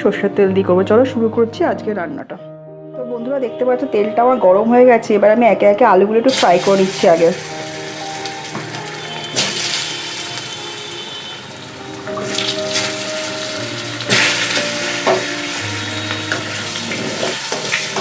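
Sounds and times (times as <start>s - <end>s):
background music with held notes: 0.0s - 18.0s
potatoes sizzling in oil: 6.3s - 18.0s.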